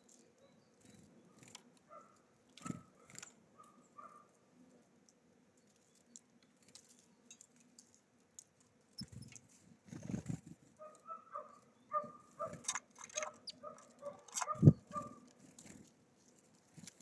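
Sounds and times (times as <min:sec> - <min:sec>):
short repeated bird calls: 0:11.9 - 0:15.2
birds tapping at a feeder: 0:12.0 - 0:15.8.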